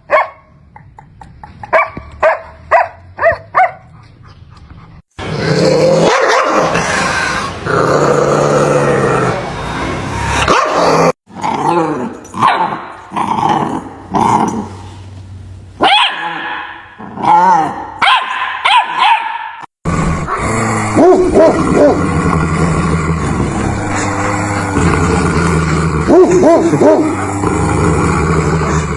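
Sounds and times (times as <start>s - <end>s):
dogs barking and growling: 0.0s - 28.9s
short barks and yips: 1.7s - 3.8s, 6.1s - 6.6s, 15.8s - 16.8s, 18.0s - 19.6s.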